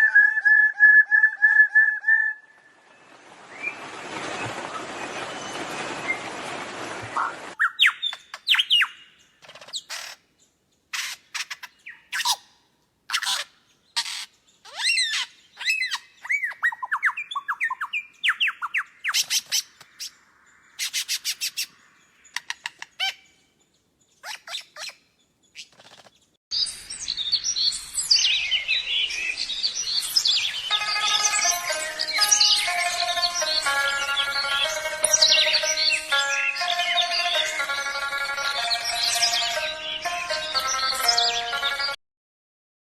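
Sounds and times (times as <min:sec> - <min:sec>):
chorus of birds chirping: 0:02.8 - 0:42.0
bird chirping and whistling: 0:07.2 - 0:09.0, 0:14.0 - 0:20.1, 0:24.2 - 0:25.0.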